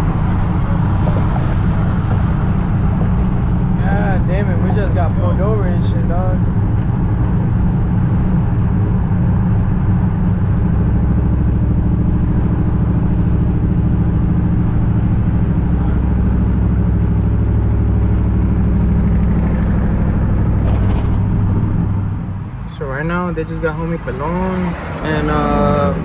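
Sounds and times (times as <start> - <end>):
road noise: 0.0 - 26.0
vehicle engine drone: 0.0 - 26.0.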